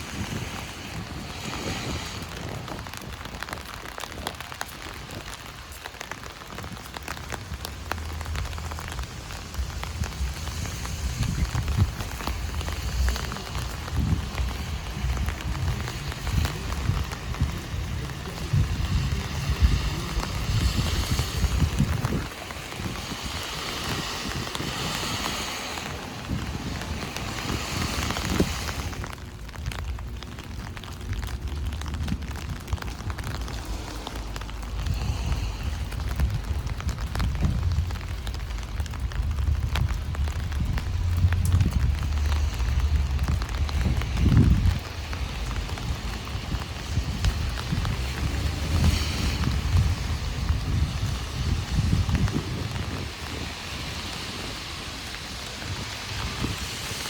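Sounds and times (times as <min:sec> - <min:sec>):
heavy rain on an umbrella: 0:00.0 - 0:57.0
tyres hissing on wet street: 0:00.0 - 0:57.0
low rumble: 0:06.4 - 0:54.0.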